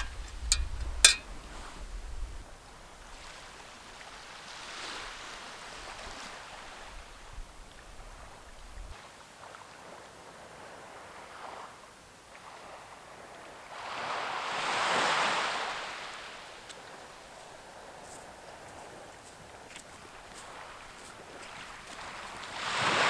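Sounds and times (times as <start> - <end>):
sea waves washing on shore: 13.7 - 23.0.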